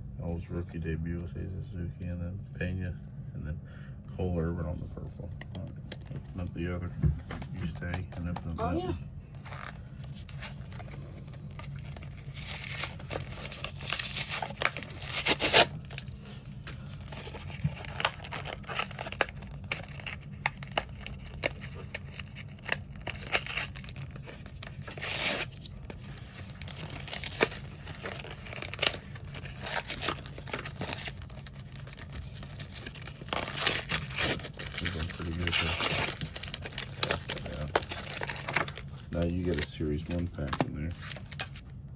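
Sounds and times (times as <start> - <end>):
steady low hum: 0.0 - 41.9
foil wrapper tearing and crinkling: 9.4 - 41.6.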